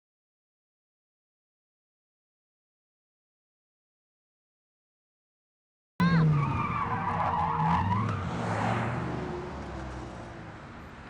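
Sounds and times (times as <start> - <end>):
car tyres squealing: 6.0 - 10.3.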